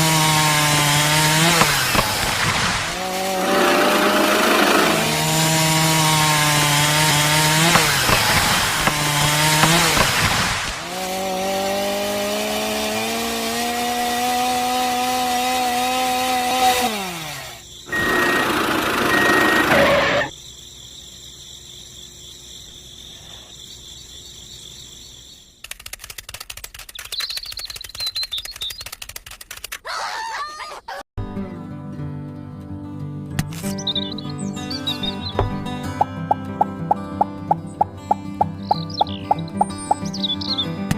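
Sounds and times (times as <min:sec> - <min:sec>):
small electric motor whining: 0:16.8 - 0:20.3
faint chirps: 0:17.5 - 0:25.6, 0:26.8 - 0:29.0, 0:36.3 - 0:40.8
fast irregular ticking: 0:25.6 - 0:29.8, 0:35.6 - 0:40.3.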